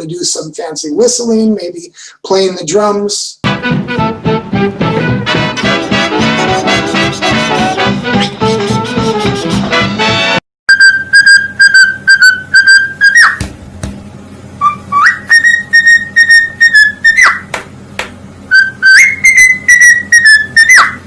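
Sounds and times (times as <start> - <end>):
pet bird whistling: 10.7 - 13.4, 14.6 - 17.5, 18.5 - 21.0.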